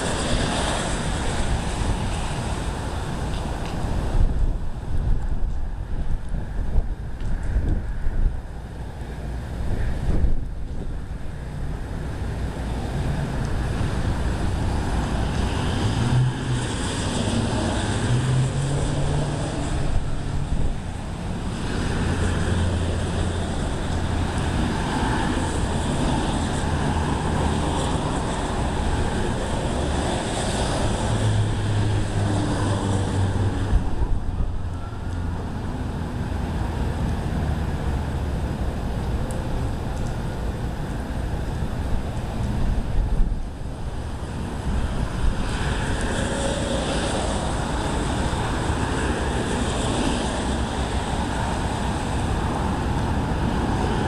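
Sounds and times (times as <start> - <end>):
storm wind gusting on microphone: 0.0 - 54.0.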